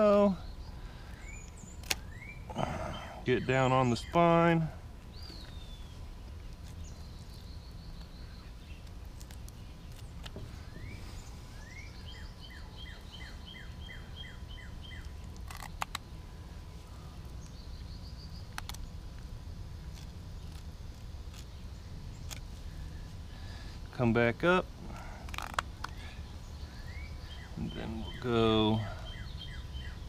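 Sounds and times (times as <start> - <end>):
birds singing: 0.0 - 30.0
low background rumble: 0.0 - 30.0
sharp clicks: 1.4 - 2.1.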